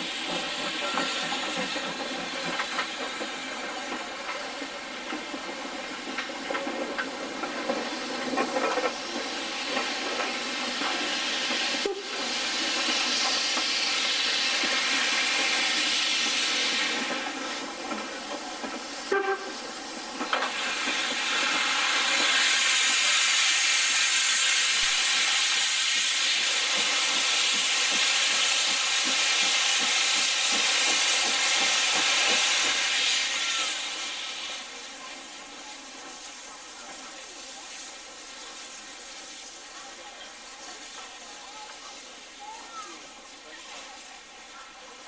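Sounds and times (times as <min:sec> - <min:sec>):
steam locomotive hissing: 0:00.0 - 0:45.0.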